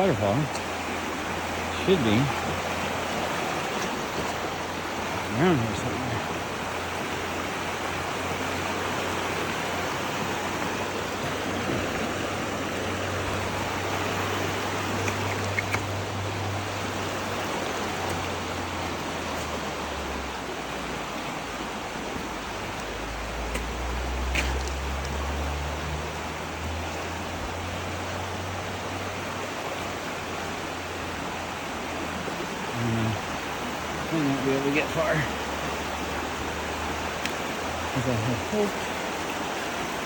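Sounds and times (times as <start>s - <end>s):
rushing water hiss: 0.0s - 40.0s
faint clicks: 15.0s - 16.0s.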